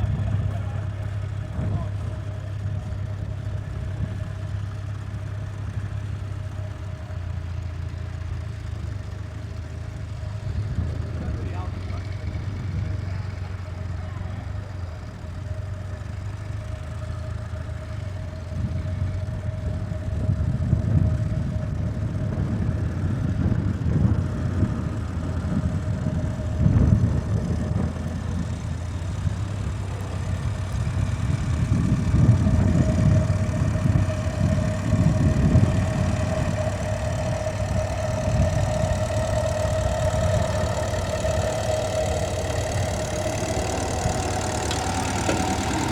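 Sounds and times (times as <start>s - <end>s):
tractor engine running: 0.0s - 45.9s
high whine: 24.7s - 45.9s.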